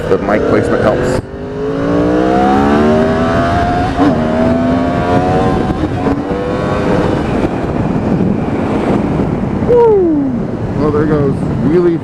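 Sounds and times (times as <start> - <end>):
sport bike engine accelerating: 0.0 - 7.9
wind rushing on microphone: 0.0 - 12.0.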